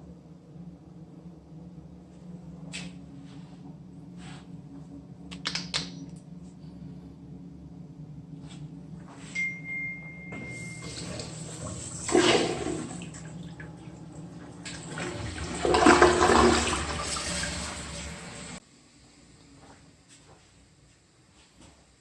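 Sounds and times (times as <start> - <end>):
toilet flushing: 10.3 - 18.6.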